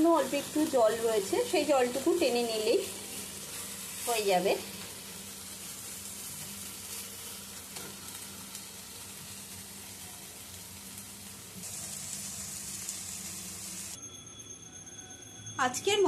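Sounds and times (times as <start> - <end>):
food sizzling in a frying pan: 0.0 - 14.0
spatula scraping a pan: 2.8 - 4.2.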